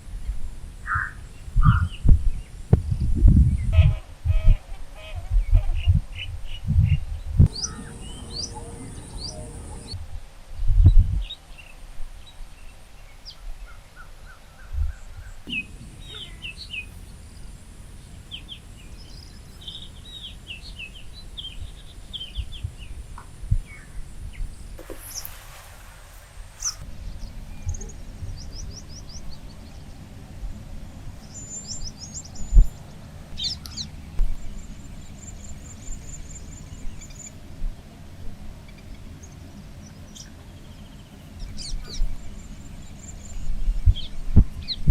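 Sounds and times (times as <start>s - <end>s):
small birds chirping: 5.5s - 10.0s, 31.1s - 37.9s
low background rumble: 6.0s - 10.0s.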